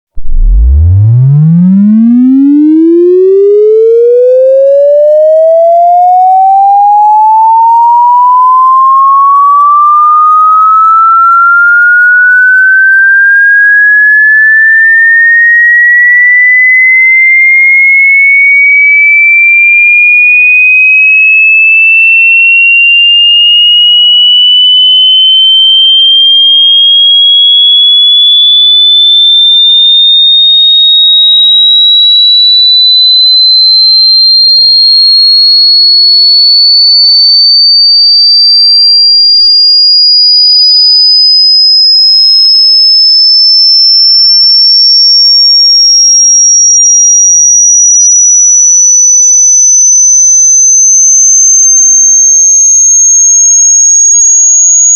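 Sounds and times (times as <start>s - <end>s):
electronic rising sweep tone: 0.2s - 14.9s, 23.2s - 26.2s.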